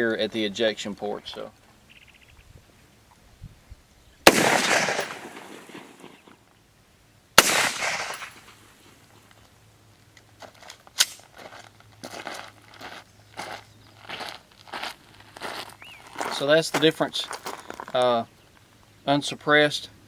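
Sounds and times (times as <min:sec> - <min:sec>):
rifle shots echoing: 0:04.2 - 0:06.3, 0:07.4 - 0:08.7.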